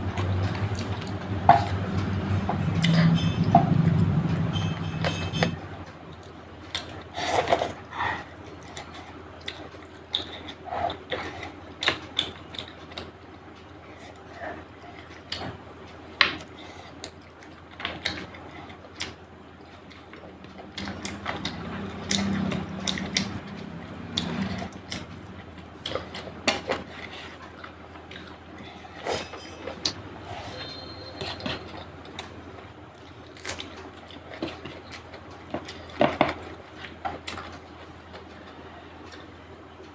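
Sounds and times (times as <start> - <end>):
close chewing with wet clicks: 8.5 - 15.5, 16.4 - 29.0.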